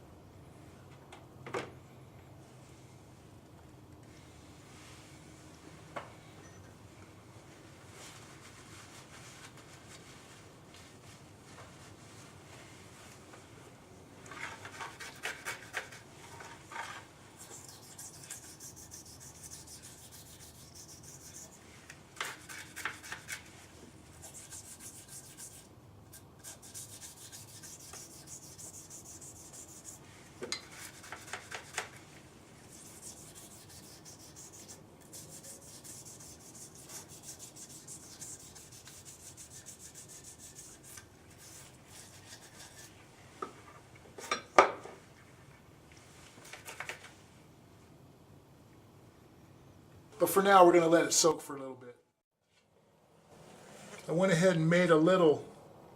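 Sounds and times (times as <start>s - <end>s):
scratchy rubbing: 14.3s - 43.0s.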